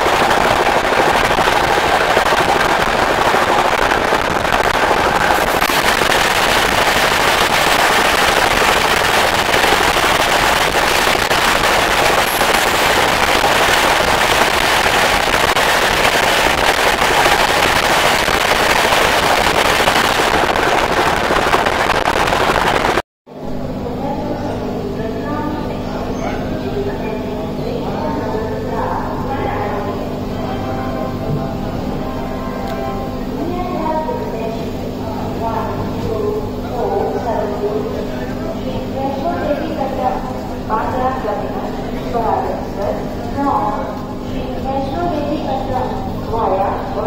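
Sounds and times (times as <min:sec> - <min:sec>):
train wheels rushing on rails: 0:00.0 - 0:23.0.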